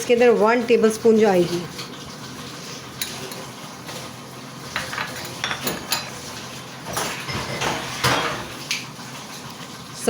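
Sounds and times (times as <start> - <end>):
spoon scraping a pot: 4.7 - 6.4.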